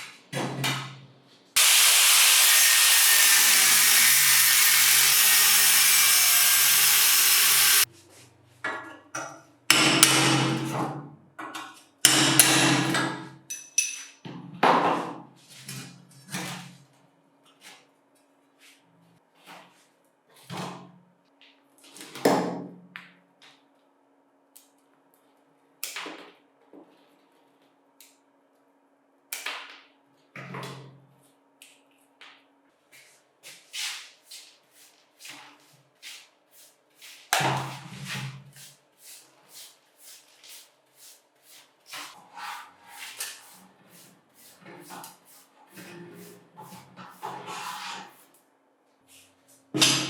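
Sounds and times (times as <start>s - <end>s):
tools clicking on metal: 13.5s - 14.2s.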